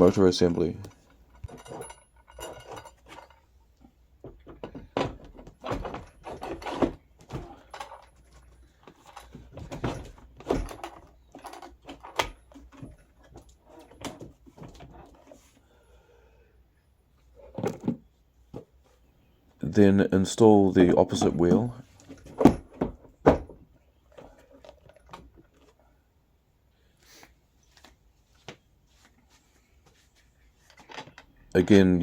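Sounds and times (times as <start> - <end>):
clicks and metallic clatter: 0.0 - 15.1.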